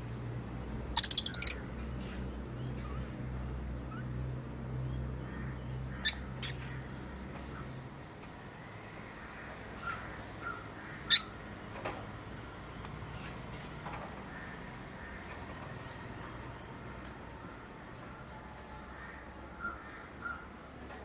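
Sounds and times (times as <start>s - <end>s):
lovebirds squawking: 1.0s - 1.6s
faint bird chirps: 1.0s - 4.2s.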